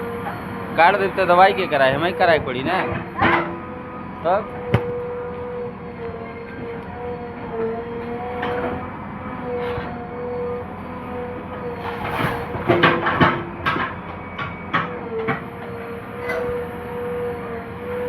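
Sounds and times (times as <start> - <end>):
backhoe loader engine whining: 0.0 - 18.0
sharp clanks and knocks: 2.8 - 3.6.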